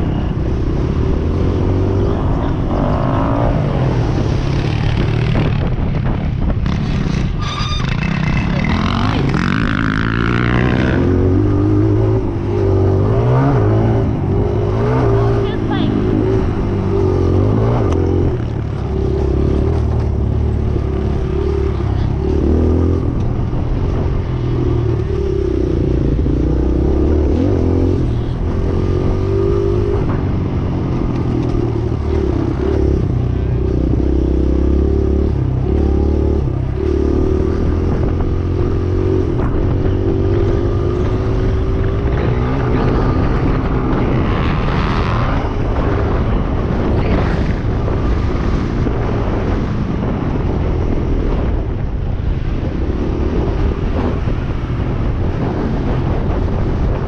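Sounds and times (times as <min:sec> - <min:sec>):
dirt bike engine revving: 0:06.6 - 0:23.2.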